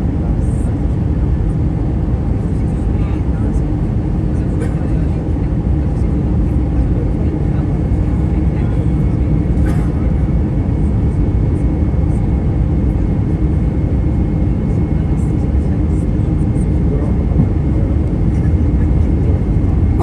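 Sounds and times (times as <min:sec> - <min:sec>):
airliner cabin engine rumble: 0:00.0 - 0:20.0.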